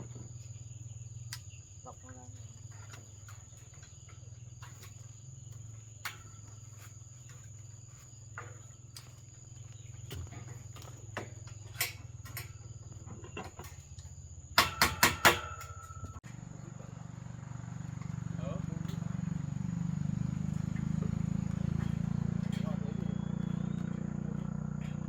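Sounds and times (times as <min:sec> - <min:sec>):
loud knocks with ringing note: 0:14.6 - 0:16.2.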